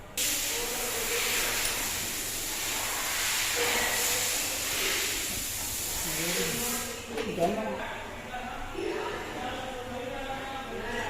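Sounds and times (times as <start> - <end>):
steady loud hiss: 0.0 - 7.2.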